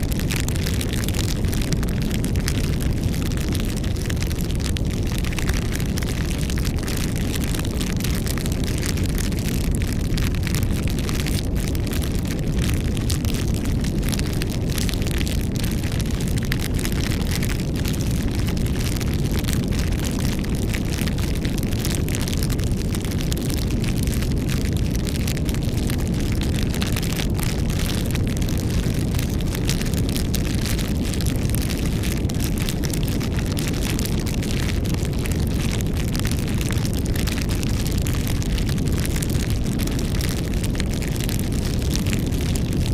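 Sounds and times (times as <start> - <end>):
campfire rumble: 0.0 - 42.9
fire crackles and pops: 0.0 - 42.9.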